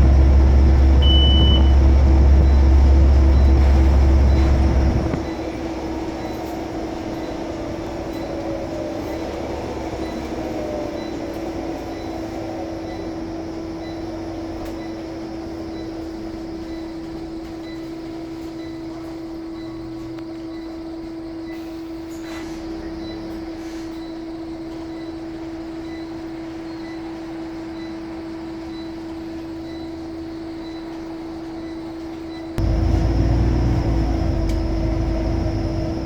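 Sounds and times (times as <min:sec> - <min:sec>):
faint whine falling in pitch: 0:00.0 - 0:05.6, 0:32.6 - 0:36.0
bus high hum: 0:00.0 - 0:23.9, 0:32.6 - 0:36.0.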